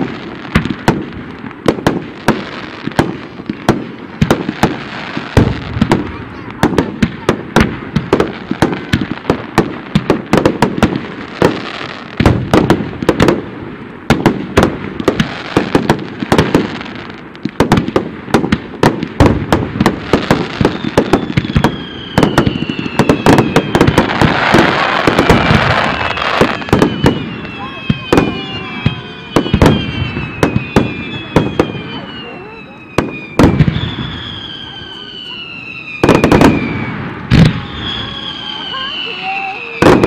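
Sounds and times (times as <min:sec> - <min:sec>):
fireworks bursting: 0:00.0 - 0:40.0
fireworks hissing: 0:00.0 - 0:40.0
falling whistling tones: 0:20.5 - 0:23.9, 0:24.8 - 0:40.0.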